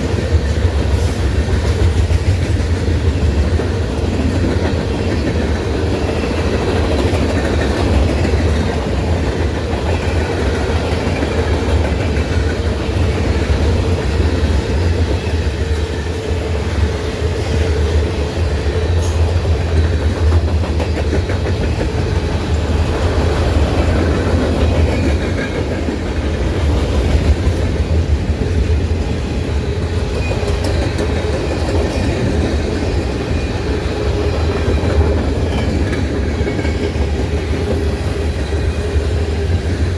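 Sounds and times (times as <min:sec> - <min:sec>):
freight train rumbling: 0:00.0 - 0:39.9.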